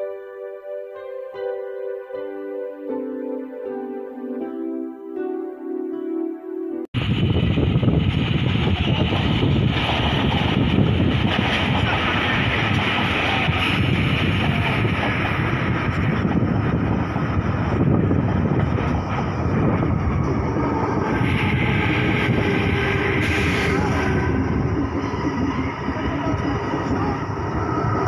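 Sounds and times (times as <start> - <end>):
electric train passing: 7.0 - 28.0.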